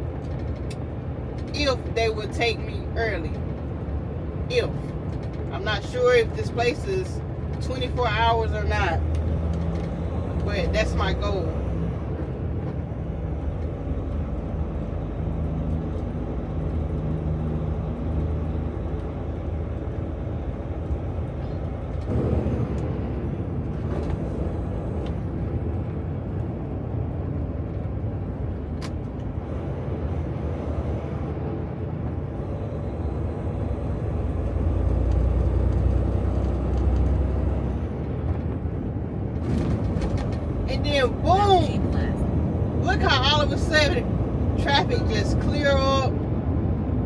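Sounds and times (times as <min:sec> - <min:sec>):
diesel truck engine running: 0:00.0 - 0:47.0
road noise: 0:00.0 - 0:47.0.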